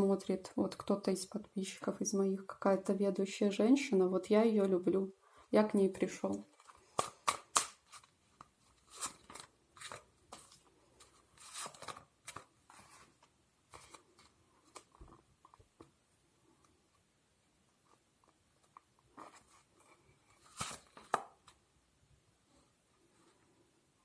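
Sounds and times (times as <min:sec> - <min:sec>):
cards being shuffled: 0:06.3 - 0:15.6, 0:19.2 - 0:21.6.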